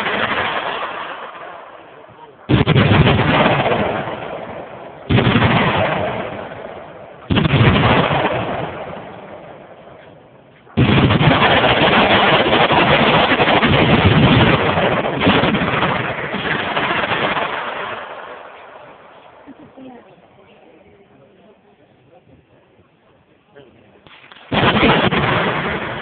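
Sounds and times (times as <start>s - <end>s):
gunshot blasts: 0.0s - 10.1s, 10.8s - 18.7s, 24.1s - 26.0s
rapid machine-gun fire: 2.5s - 4.5s, 5.1s - 6.6s, 7.3s - 9.0s, 10.8s - 18.0s, 24.5s - 26.0s.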